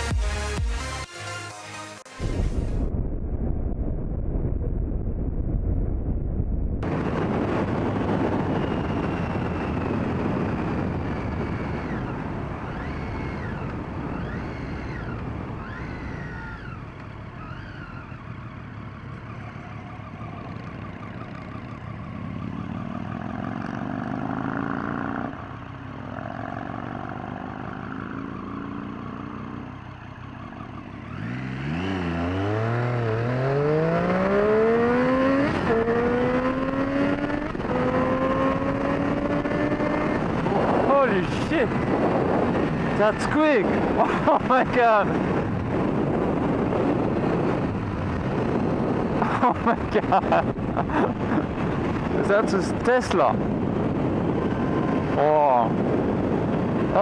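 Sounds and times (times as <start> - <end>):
wind rushing over microphone: 2.2 - 19.3, 31.0 - 57.0
motorcycle engine running: 6.8 - 57.0
siren wailing: 8.4 - 23.3.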